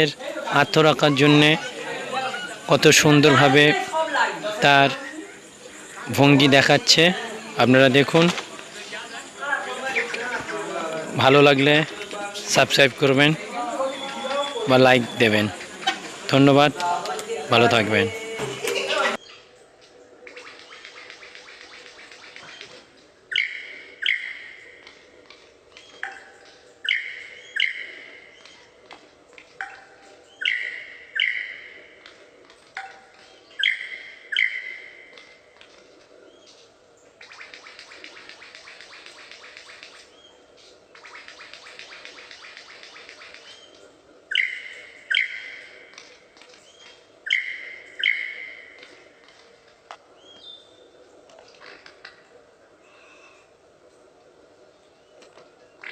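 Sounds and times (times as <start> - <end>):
bird calling: 0.0 - 55.9
bird whistling calls: 13.4 - 16.3, 20.3 - 25.0, 25.7 - 28.7, 29.6 - 31.8, 33.4 - 35.4, 41.0 - 49.0.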